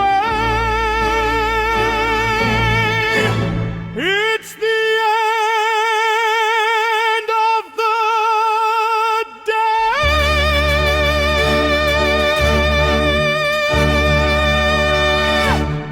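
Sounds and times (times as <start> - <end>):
low accompaniment: 0.0 - 4.1, 10.0 - 15.9
operatic singing with vibrato: 0.0 - 15.9.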